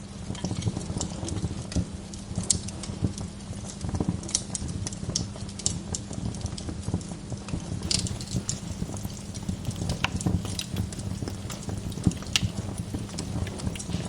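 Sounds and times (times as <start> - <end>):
low rumble of flames: 7.8 - 14.0
wood fire crackling: 7.8 - 14.0.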